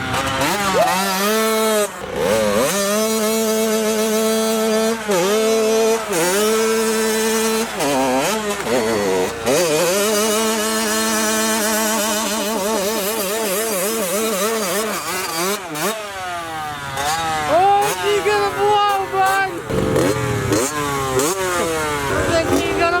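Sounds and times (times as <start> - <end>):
two-stroke engine at high revs: 0.0 - 23.0.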